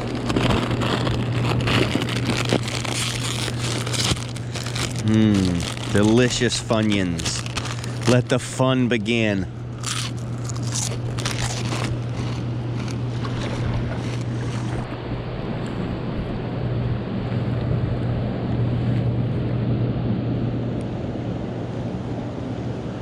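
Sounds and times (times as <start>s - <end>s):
water around a kayak: 0.0s - 6.2s, 12.8s - 19.7s
person chewing crunchy snacks: 0.0s - 14.9s
constant low hum: 0.0s - 23.0s.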